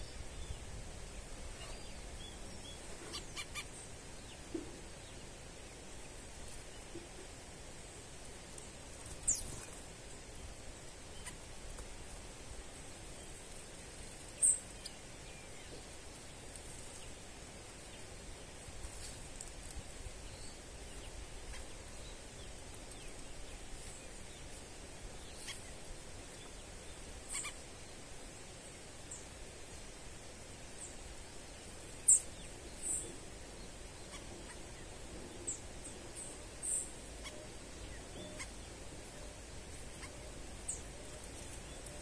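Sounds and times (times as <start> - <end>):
faint outdoor hiss: 0.0 - 42.0
birds chirping: 1.5 - 7.3, 20.2 - 27.8, 31.6 - 42.0.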